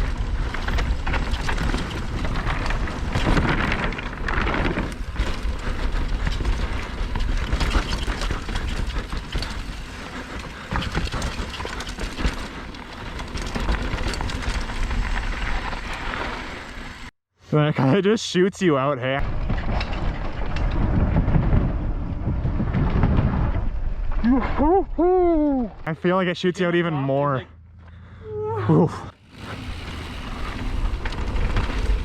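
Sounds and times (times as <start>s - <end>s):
bike rattling and knocking: 0.0s - 17.1s, 29.2s - 32.0s
tyres rolling over rough ground: 0.0s - 17.1s, 19.2s - 25.0s, 28.9s - 32.0s
wind buffeting microphone: 19.2s - 25.8s.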